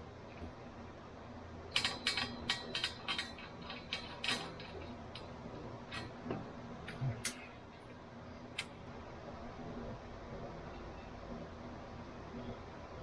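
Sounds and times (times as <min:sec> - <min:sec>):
metal parts and tools clicking: 0:01.7 - 0:06.3.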